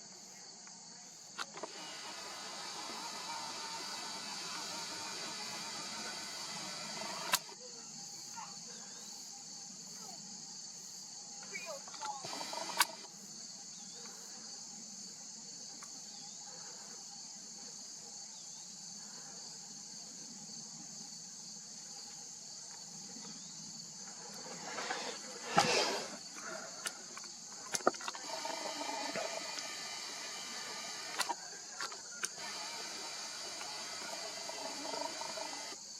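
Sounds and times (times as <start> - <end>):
insects buzzing: 0.0 - 35.9
sharp clicks: 1.4 - 7.6, 11.9 - 13.1, 24.3 - 35.8.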